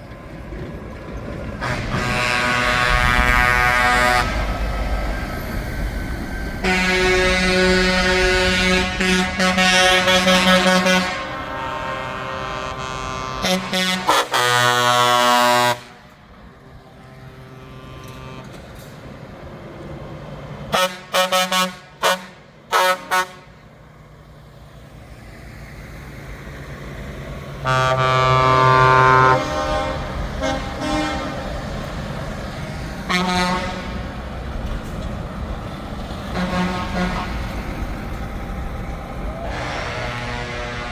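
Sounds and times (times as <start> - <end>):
heavy truck engines running: 0.0 - 40.9
truck air horn blasts: 1.6 - 4.9, 6.6 - 16.2, 17.1 - 18.6, 20.7 - 23.7, 27.6 - 32.1, 33.0 - 34.2, 36.2 - 37.7, 39.4 - 40.9.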